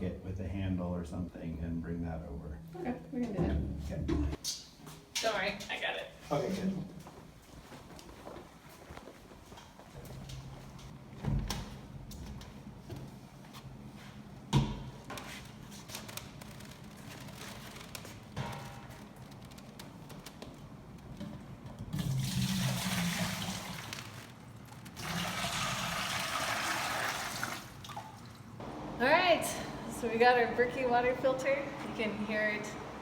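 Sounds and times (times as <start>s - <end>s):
water pouring and splashing: 21.9s - 28.5s.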